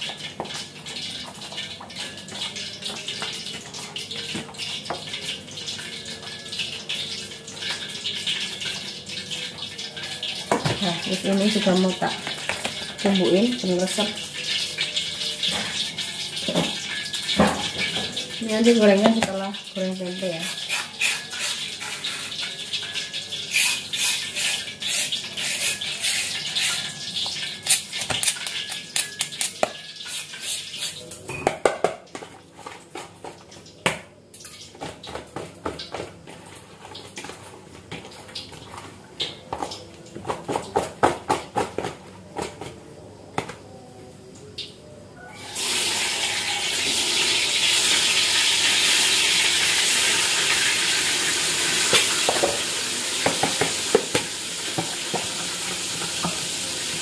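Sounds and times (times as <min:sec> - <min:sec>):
frying sizzle in hot oil: 0:00.0 - 0:43.7, 0:44.4 - 0:57.0
hands working food in plastic bowls: 0:10.0 - 0:27.0, 0:27.6 - 0:43.7, 0:51.8 - 0:57.0.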